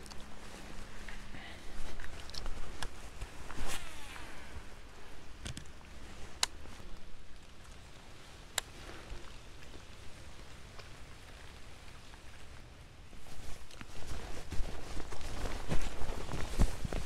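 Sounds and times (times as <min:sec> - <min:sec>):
rain falling on a lake: 0:04.5 - 0:15.5.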